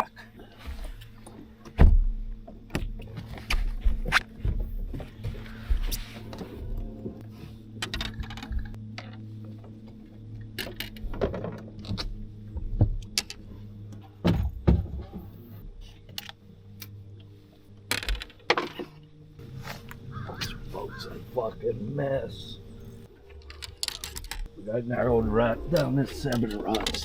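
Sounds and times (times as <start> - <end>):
steady low hum: 0.0 - 27.0
small gear clinking and knocking: 7.8 - 14.1, 17.9 - 19.0, 22.8 - 27.0.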